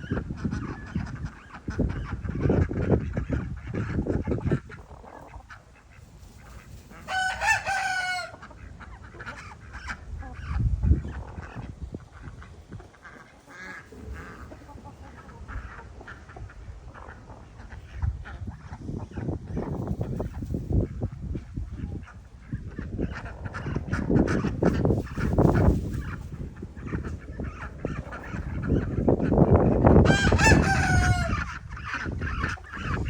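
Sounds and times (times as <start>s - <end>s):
chickens calling: 0.0s - 33.0s
rooster crowing: 7.1s - 8.4s, 30.0s - 31.4s.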